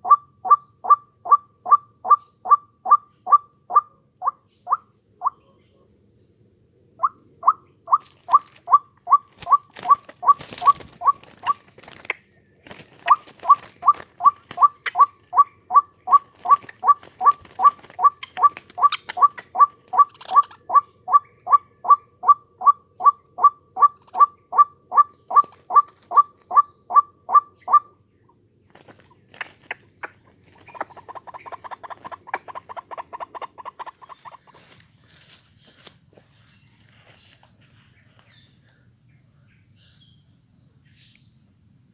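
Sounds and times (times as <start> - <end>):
bird calling repeated notes: 7.0 - 12.1, 12.9 - 27.9.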